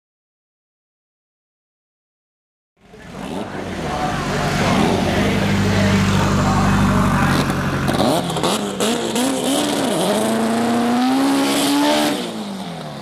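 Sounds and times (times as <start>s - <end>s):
drag car engine revving: 2.8s - 13.0s
engine crackles: 2.8s - 13.0s.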